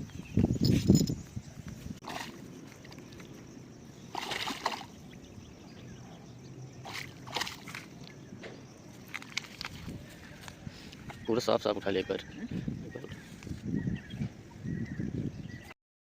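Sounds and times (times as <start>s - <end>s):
water splashing: 2.0s - 3.4s, 4.0s - 5.2s, 6.8s - 8.1s.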